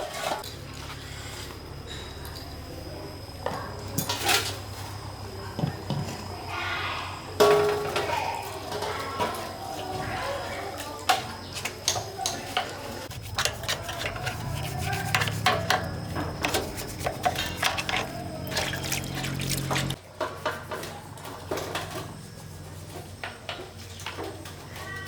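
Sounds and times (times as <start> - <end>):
metal tools clinking and knocking: 11.8 - 20.0.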